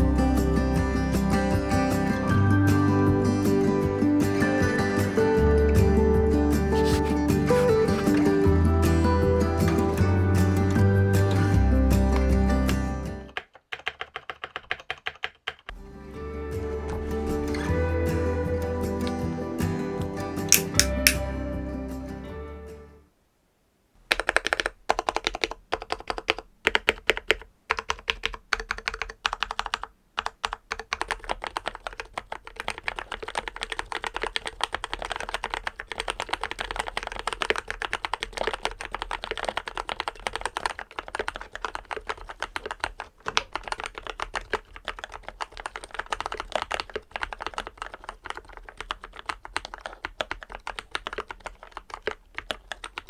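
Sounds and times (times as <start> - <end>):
typing on mechanical keyboard: 12.2 - 15.7, 20.5 - 21.2, 24.1 - 53.0.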